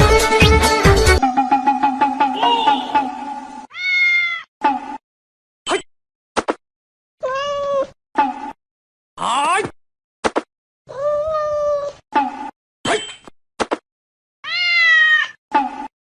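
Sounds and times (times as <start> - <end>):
music: 0.0 - 3.7
cat meowing: 3.7 - 4.5, 7.2 - 7.9, 14.4 - 15.4.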